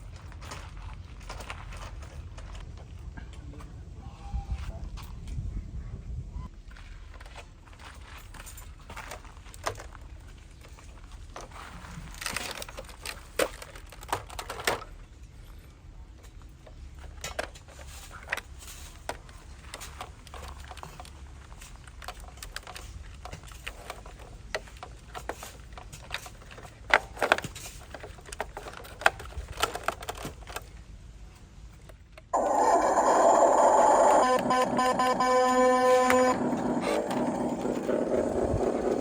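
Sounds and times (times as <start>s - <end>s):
soil and pebbles clattering: 0.0s - 3.2s.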